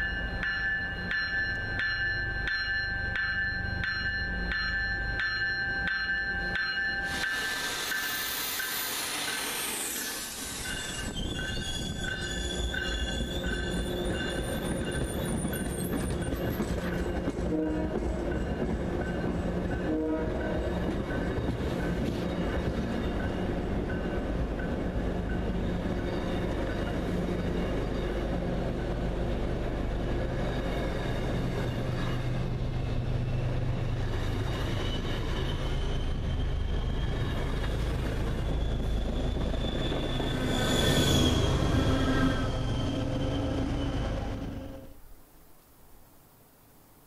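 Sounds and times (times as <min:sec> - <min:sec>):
train wheels rumbling on rail: 0:00.0 - 0:44.9
high squeal and hiss: 0:07.1 - 0:15.2, 0:34.0 - 0:44.9.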